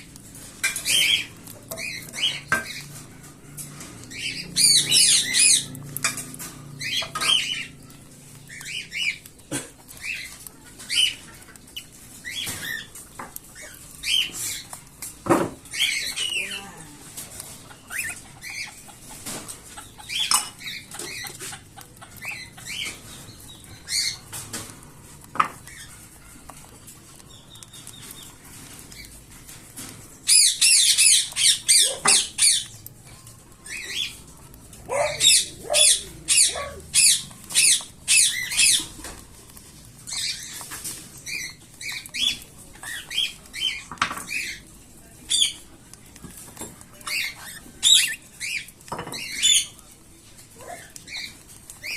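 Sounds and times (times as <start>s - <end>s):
chicks giving raspy begging calls: 0.8s - 14.9s, 15.6s - 24.5s, 30.2s - 44.6s.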